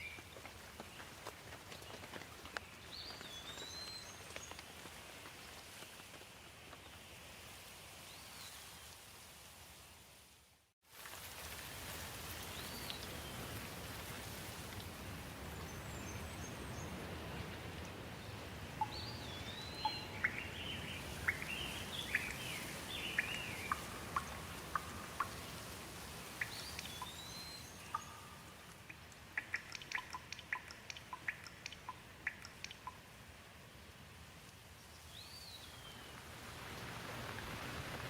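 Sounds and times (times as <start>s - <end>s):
steady rain: 0.0s - 38.0s
birds chirping: 15.5s - 33.0s
water drops dripping: 18.8s - 20.5s, 21.2s - 25.6s, 26.3s - 33.1s.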